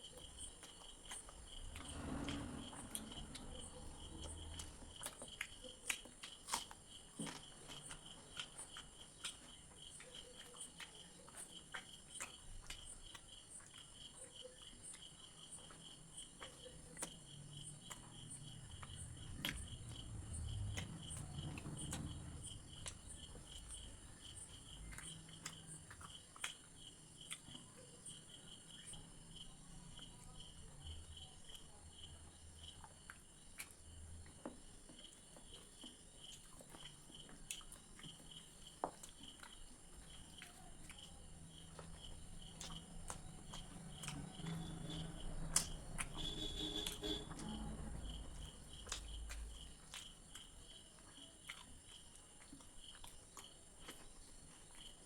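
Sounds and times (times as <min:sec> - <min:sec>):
crickets chirping: 0:00.0 - 0:55.0
soft chewing: 0:00.0 - 0:55.0.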